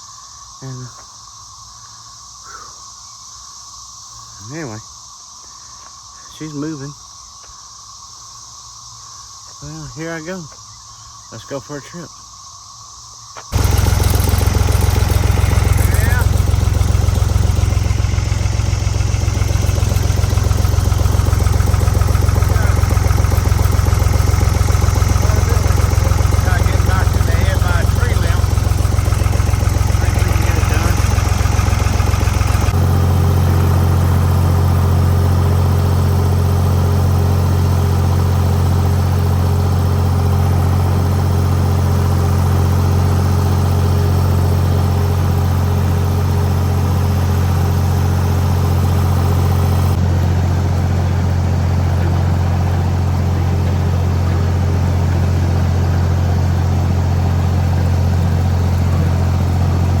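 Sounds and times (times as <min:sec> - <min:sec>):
tractor engine running: 0:13.5 - 1:00.0.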